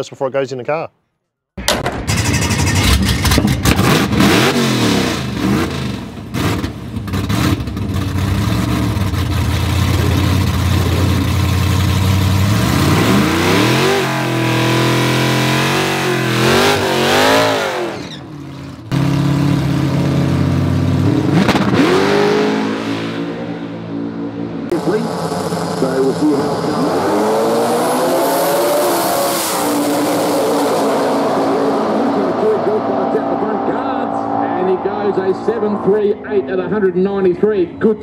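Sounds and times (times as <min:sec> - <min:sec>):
engine crackles: 0:01.6 - 0:22.1
car engine revving: 0:01.8 - 0:37.4.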